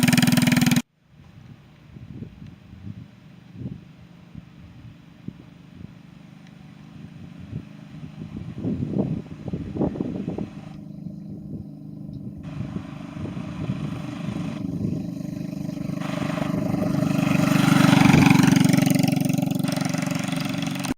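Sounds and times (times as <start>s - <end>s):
mini bike engine running: 0.0s - 0.8s, 5.4s - 20.9s.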